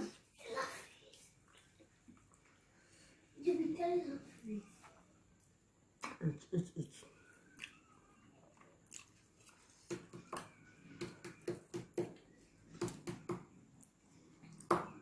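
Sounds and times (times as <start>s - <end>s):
person chewing: 7.4s - 10.0s.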